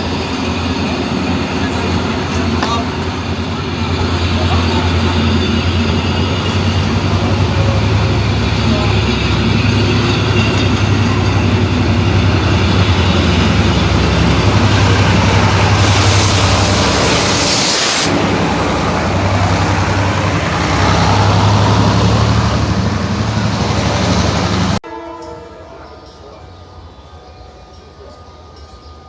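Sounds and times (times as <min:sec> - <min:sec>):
train engine humming: 0:00.0 - 0:29.0
loud hiss: 0:15.4 - 0:19.6.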